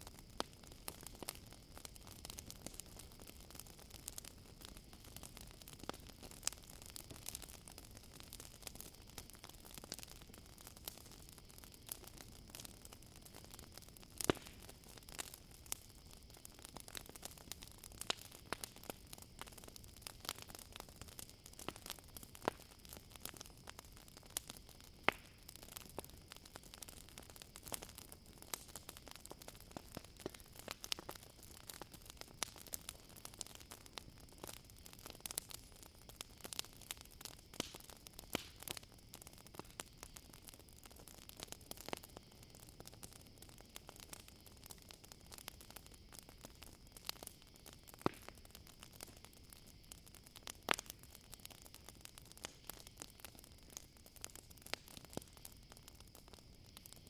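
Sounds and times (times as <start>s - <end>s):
campfire crackling and popping: 0.0s - 57.0s
faint steady hiss: 0.0s - 57.0s
night insects droning: 0.0s - 57.0s.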